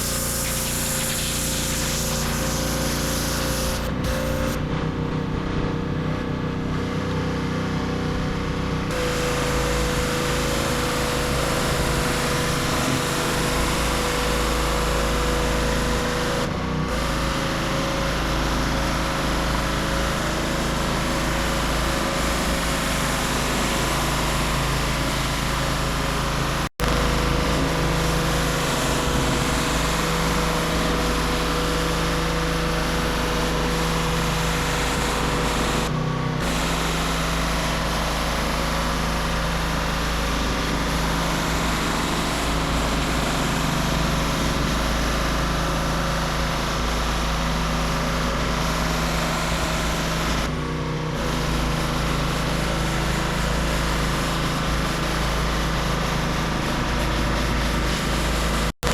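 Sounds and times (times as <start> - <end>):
water spray hissing: 0.0 - 4.6, 26.8 - 35.8
pressure washer engine running: 0.0 - 58.9.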